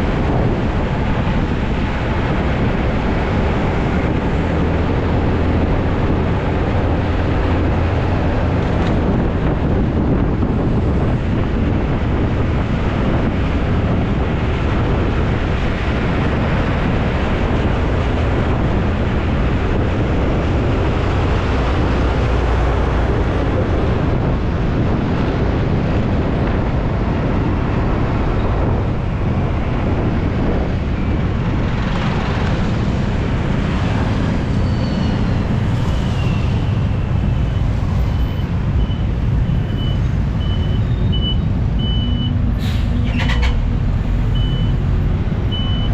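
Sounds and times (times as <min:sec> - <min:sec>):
road noise: 0:00.0 - 0:45.9
wind rush on microphone: 0:00.0 - 0:45.9
high-pitched beep: 0:38.1 - 0:42.4, 0:45.5 - 0:45.9.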